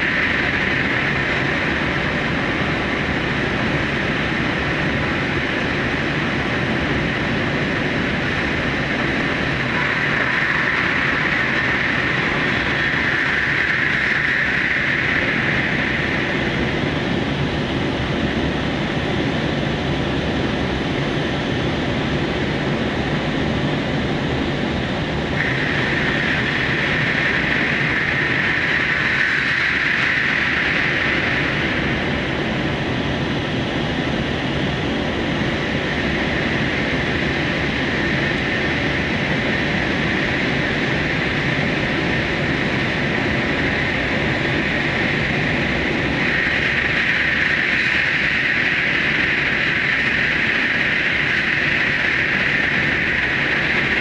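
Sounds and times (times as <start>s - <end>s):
train wheels on rail in tunnel: 0.0s - 54.0s
high hiss: 8.3s - 17.4s.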